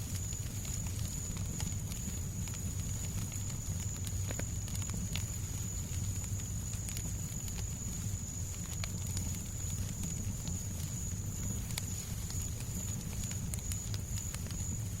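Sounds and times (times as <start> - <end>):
fire crackling and popping: 0.0 - 15.0
low rumbling hiss: 0.0 - 15.0.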